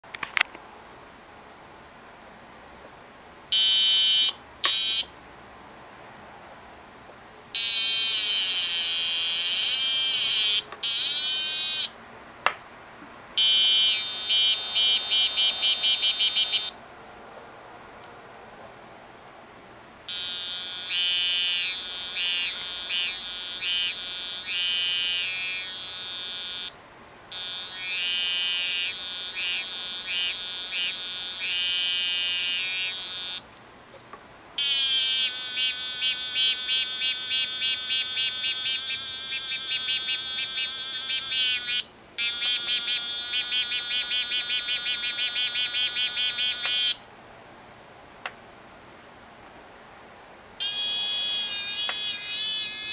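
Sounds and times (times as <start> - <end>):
electronic cicada-like buzzing: 3.5 - 5.2, 7.6 - 12.0, 13.4 - 16.8, 20.1 - 33.5, 34.6 - 47.1, 50.6 - 52.9.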